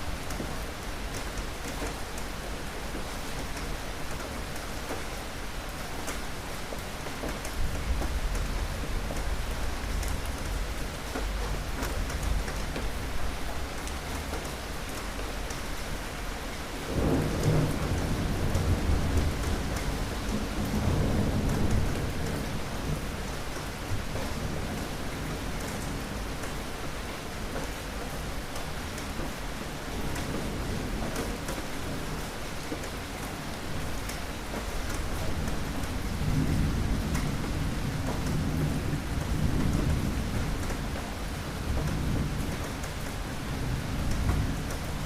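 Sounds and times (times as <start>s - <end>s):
steady rain falling: 0.0s - 45.0s
rolling thunder: 16.9s - 23.1s.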